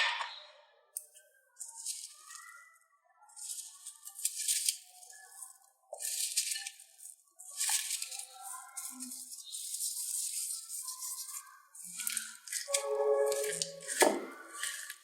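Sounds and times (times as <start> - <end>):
slime squishing: 3.3 - 15.0
soft background music: 12.7 - 15.0.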